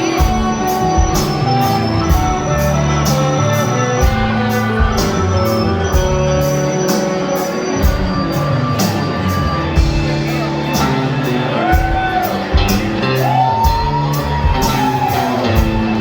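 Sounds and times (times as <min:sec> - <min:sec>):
steady drum beat: 0:00.0 - 0:16.0.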